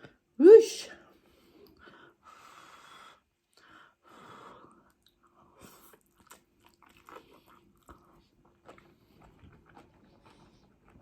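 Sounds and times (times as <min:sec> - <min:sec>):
chewing and mouth sounds: 0:04.8 - 0:11.0.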